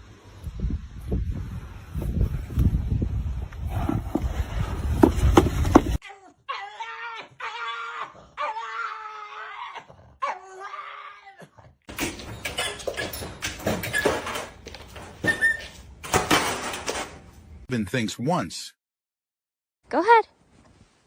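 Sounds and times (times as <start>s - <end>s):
clattering and knocking: 11.9s - 15.4s, 16.0s - 17.3s.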